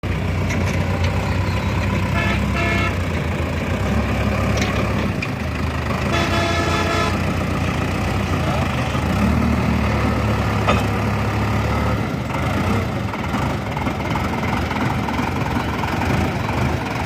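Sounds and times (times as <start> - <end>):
tractor engine running: 0.0 - 17.0
vehicle horn tooting: 1.5 - 3.0, 6.1 - 7.2.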